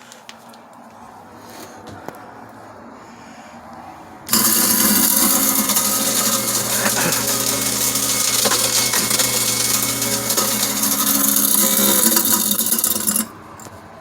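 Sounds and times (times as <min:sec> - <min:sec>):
garbage disposal whirring grind: 0:04.3 - 0:13.7.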